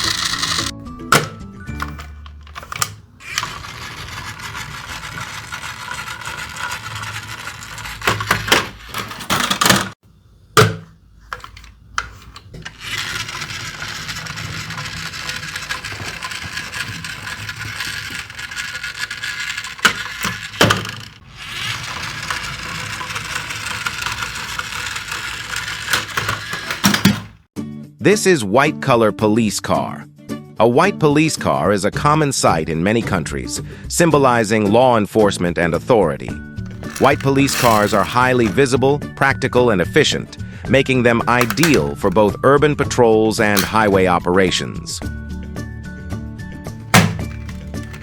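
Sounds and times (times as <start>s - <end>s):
toy wheels rattling on a track: 0.0s - 10.0s, 11.3s - 27.4s, 36.7s - 38.7s, 41.3s - 42.3s, 43.5s - 44.2s, 46.8s - 48.0s.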